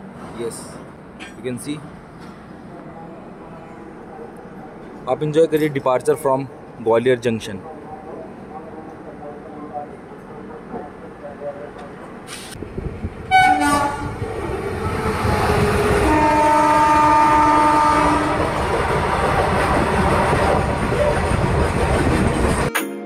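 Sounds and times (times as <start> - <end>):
train rumble and wheel clatter: 0.0 - 22.7
locomotive horn blast: 13.3 - 14.2, 14.8 - 18.6.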